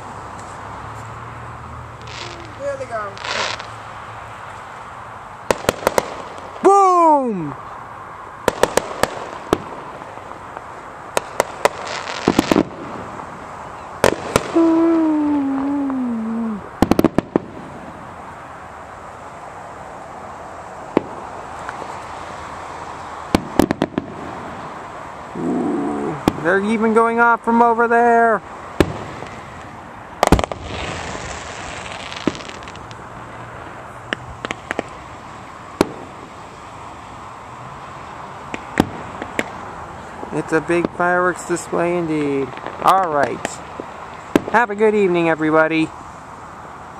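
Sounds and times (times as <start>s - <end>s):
fireworks crackling: 1.9s - 7.8s, 8.4s - 19.5s, 20.7s - 37.0s, 37.9s - 46.9s
fireworks bangs: 2.0s - 3.8s, 5.4s - 6.8s, 8.4s - 13.2s, 14.0s - 18.1s, 20.9s - 21.2s, 23.3s - 24.8s, 26.1s - 27.7s, 28.8s - 33.0s, 33.6s - 35.0s, 35.8s - 36.4s, 38.5s - 39.6s, 40.2s - 45.8s.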